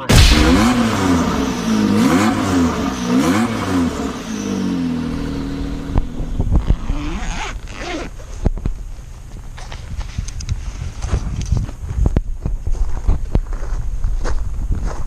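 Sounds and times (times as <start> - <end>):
motorcycle engine revving and idling: 0.0 - 9.6.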